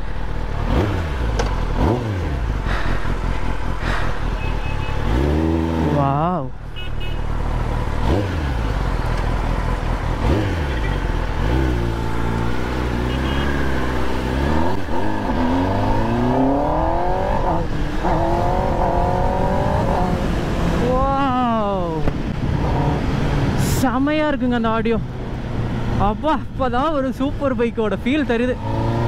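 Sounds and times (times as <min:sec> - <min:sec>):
motorcycle engine accelerating: 0:00.0 - 0:06.2, 0:07.4 - 0:21.2.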